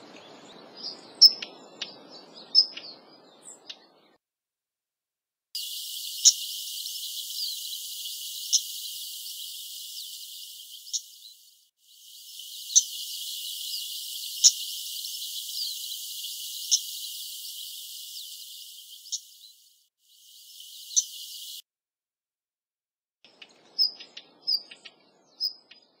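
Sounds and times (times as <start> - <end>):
faint bird chirps: 0.0 - 4.2, 5.6 - 21.6, 23.3 - 26.0
bird call notes: 5.6 - 19.7, 20.4 - 21.6
steady hiss: 5.6 - 21.6.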